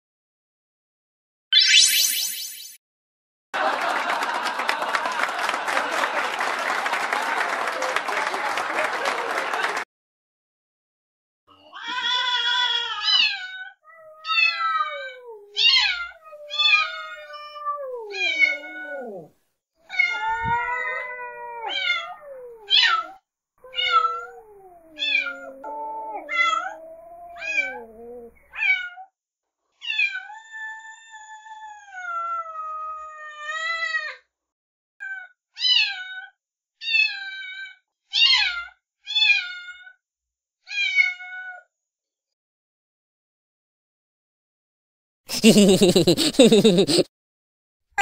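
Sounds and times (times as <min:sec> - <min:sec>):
kittens mewing: 0:14.2 - 0:19.3, 0:19.9 - 0:28.8, 0:45.3 - 0:47.0.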